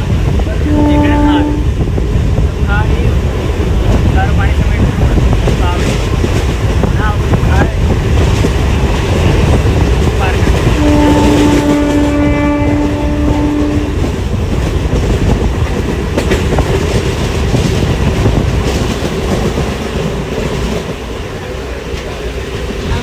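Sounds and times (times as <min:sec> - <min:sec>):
loud continuous rumbling: 0:00.0 - 0:20.6
horn steady note: 0:00.6 - 0:01.7, 0:10.6 - 0:14.1.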